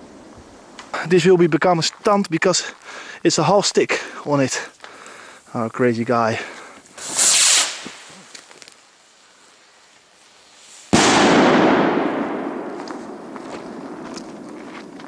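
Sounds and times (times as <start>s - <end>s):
firework rocket whooshing: 6.9s - 8.4s
loud echoing bang: 11.0s - 14.6s.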